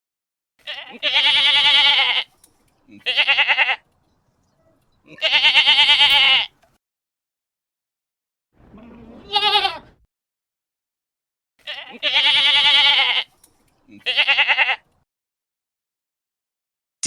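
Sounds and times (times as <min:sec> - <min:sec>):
goat bleating: 0:00.6 - 0:03.9, 0:05.0 - 0:06.6, 0:08.7 - 0:10.0, 0:11.6 - 0:14.9.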